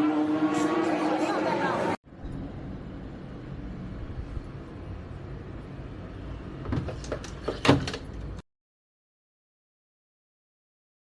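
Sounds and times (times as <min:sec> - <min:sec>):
sharp knocks and clatters: 0:06.6 - 0:08.4.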